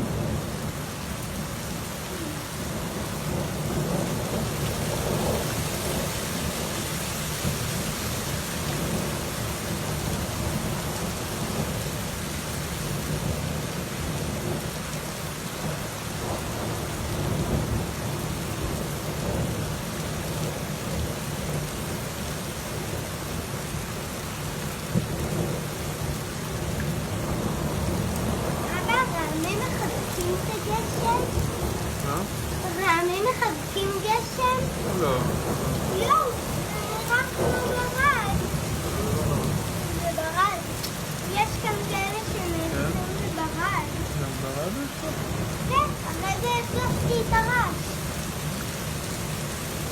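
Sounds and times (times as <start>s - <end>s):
thunder rumbling: 0.0s - 6.8s, 24.6s - 49.9s
heavy rain hissing: 0.0s - 49.9s.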